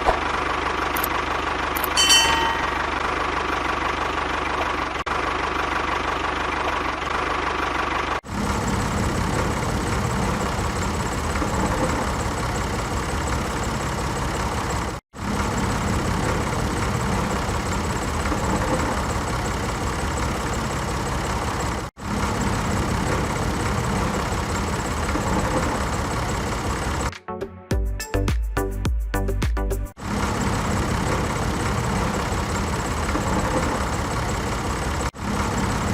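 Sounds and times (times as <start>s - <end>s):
engine running with rapid knocking: 0.0s - 27.1s, 30.0s - 35.9s.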